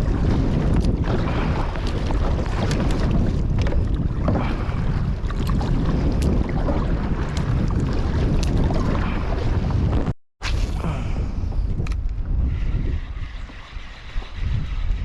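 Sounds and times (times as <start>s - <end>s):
water splashing against kayak: 0.0s - 11.9s
wind buffeting microphone: 0.0s - 15.0s.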